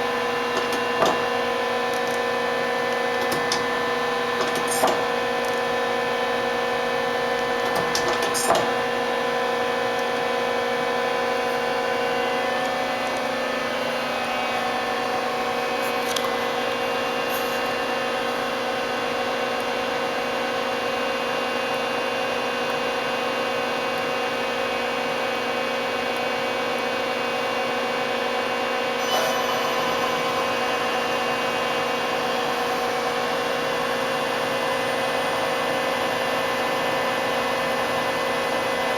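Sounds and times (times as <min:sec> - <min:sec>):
machine whine: 0:00.0 - 0:18.9, 0:28.1 - 0:38.9.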